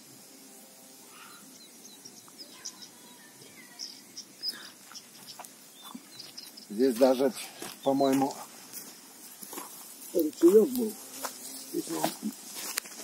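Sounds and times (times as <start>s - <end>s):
faint outdoor hush: 0.0s - 13.0s
small birds chirping: 0.0s - 13.0s.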